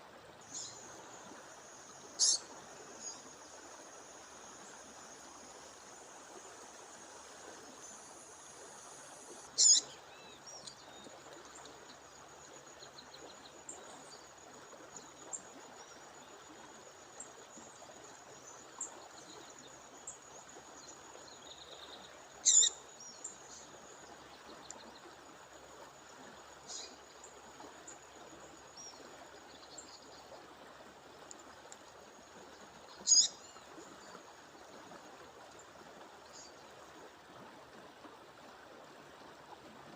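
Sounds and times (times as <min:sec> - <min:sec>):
faint chirps: 0:00.4 - 0:05.8, 0:07.6 - 0:11.0
songbird sharp high call: 0:02.2 - 0:02.5, 0:09.6 - 0:10.0, 0:22.4 - 0:22.8, 0:33.0 - 0:33.4.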